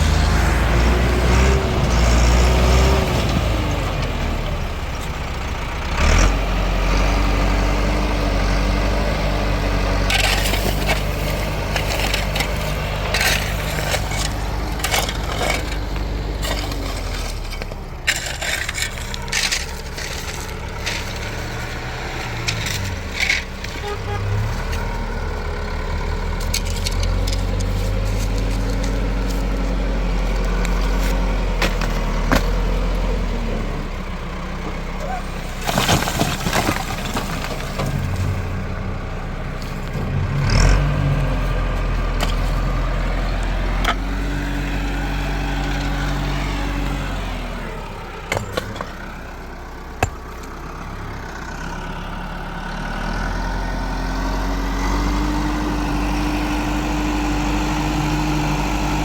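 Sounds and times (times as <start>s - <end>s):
tractor engine running: 0.0s - 59.0s
knocks and clatter: 35.6s - 38.4s.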